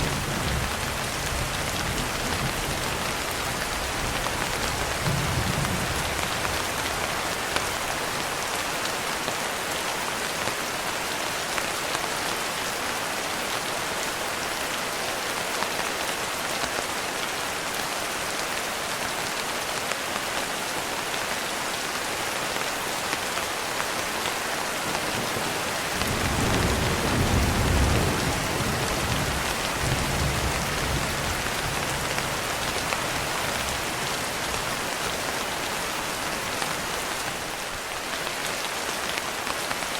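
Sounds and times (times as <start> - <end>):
heavy rain falling: 0.0 - 39.9
distant thunder rumble: 25.0 - 32.4.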